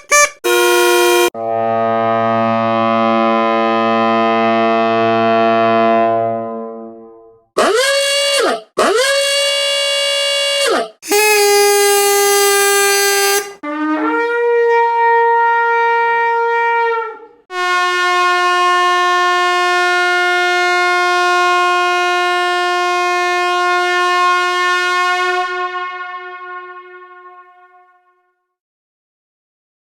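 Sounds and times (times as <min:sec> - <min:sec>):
horn blasts: 0:00.0 - 0:06.9, 0:07.6 - 0:28.2.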